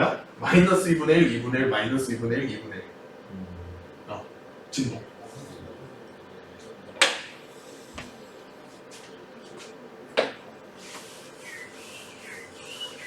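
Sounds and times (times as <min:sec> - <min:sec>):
high wavering whistle-like tones: 0:11.0 - 0:13.0.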